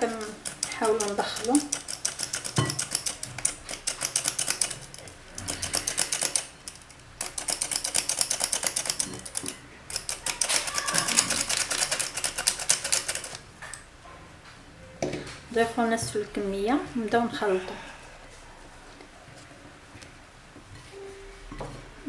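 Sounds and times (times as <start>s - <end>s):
utensil clicking against mixing bowl: 0.0s - 6.5s.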